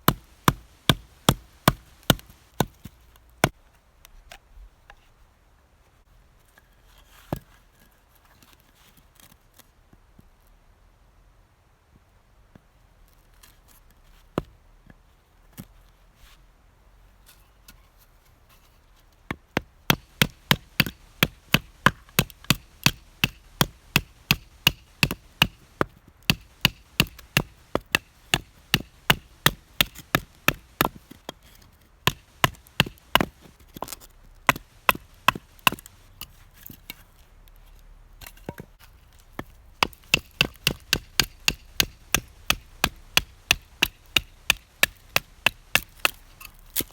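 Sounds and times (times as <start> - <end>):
firewood chopping strikes: 0.0 - 3.6, 19.3 - 31.4, 32.0 - 36.2, 38.2 - 46.9.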